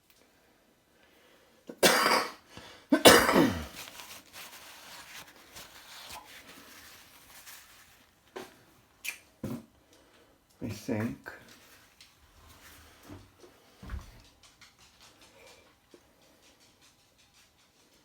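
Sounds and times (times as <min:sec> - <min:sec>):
person coughing: 0:01.7 - 0:03.8.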